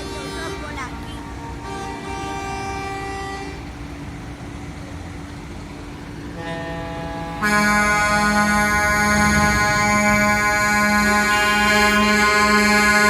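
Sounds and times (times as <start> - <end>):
truck air horn chords: 0.0 - 3.6, 6.3 - 13.0.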